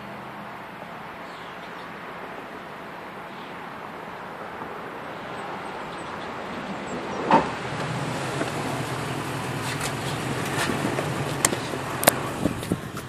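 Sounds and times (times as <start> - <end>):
truck engine idling: 5.0 - 13.0.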